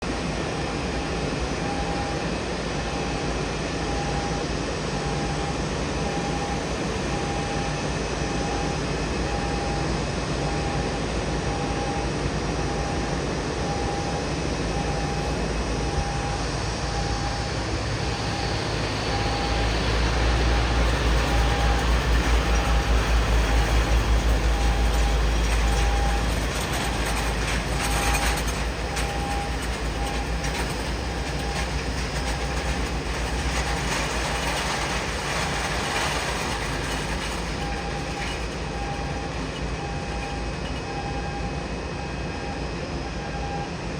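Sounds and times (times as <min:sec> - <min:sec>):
repeating warning beep: 0:05.0 - 0:43.7
heavy low rumble: 0:12.5 - 0:40.7.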